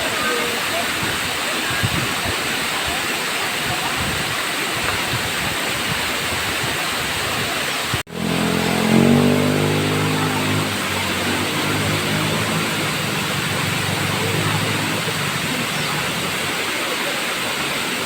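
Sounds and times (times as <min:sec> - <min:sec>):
waterfall rushing: 0:00.0 - 0:18.0
vehicle engine hum: 0:08.1 - 0:18.0.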